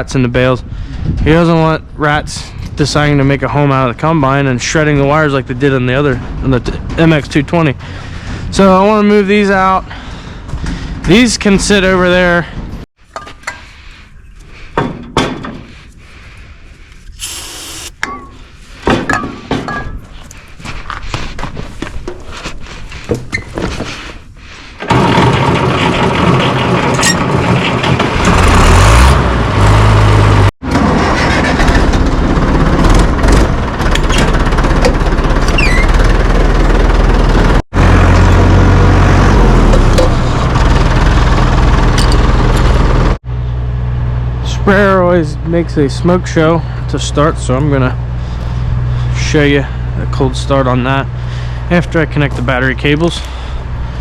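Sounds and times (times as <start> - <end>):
diesel engine deep rumble: 0.0 - 12.8, 24.3 - 54.0.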